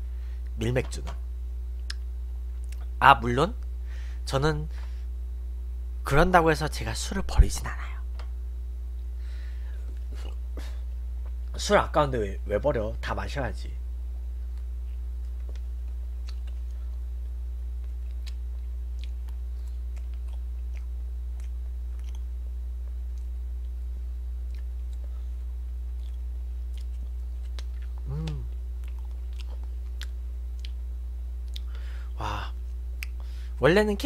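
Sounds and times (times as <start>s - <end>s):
steady low hum: 0.0s - 34.0s
quiet chewing: 1.8s - 2.9s, 14.5s - 23.8s, 24.4s - 31.8s
person humming: 28.0s - 28.6s.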